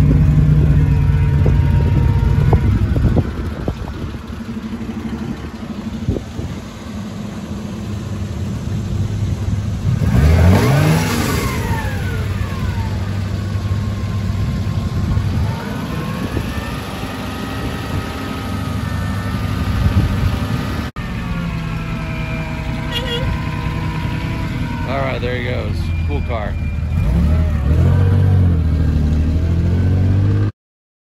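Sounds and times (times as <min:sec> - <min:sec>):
car engine revving: 0:00.0 - 0:20.9, 0:26.8 - 0:30.5.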